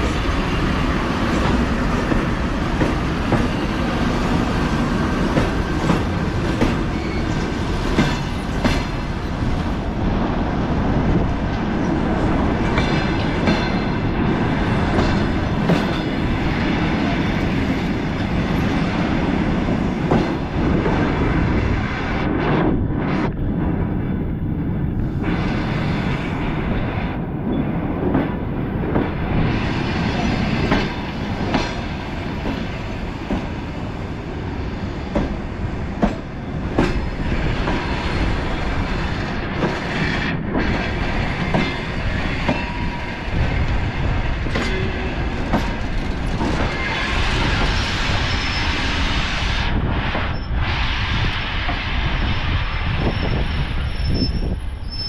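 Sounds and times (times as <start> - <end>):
train low rumble: 0.0 - 55.0.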